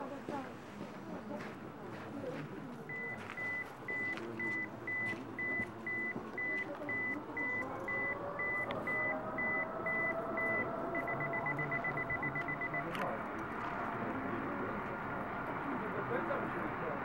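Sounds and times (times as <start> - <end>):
electronic beeping: 2.9 - 13.1.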